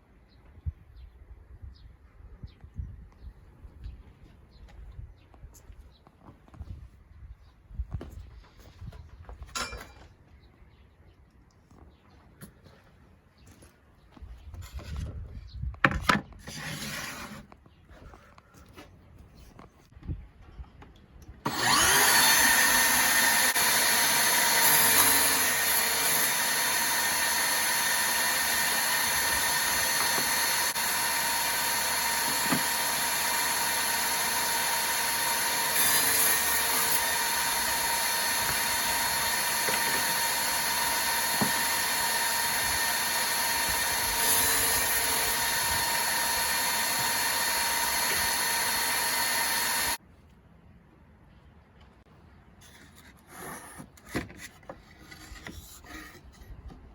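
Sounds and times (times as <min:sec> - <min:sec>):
table saw running with high whine: 0:21.5 - 0:50.0.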